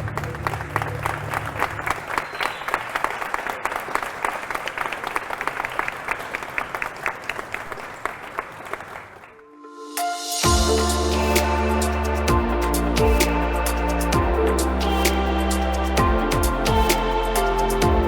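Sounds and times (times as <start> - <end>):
audience applauding: 0.0 - 9.5
bass line music: 10.4 - 18.0.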